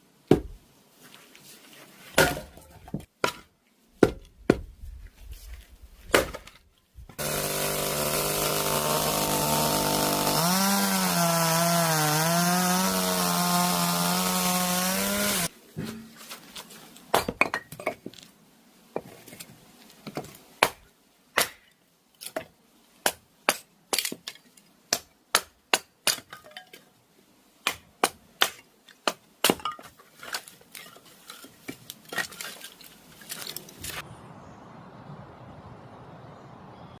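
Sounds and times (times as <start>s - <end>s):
firewood knocks and cracks: 6.1s - 6.6s.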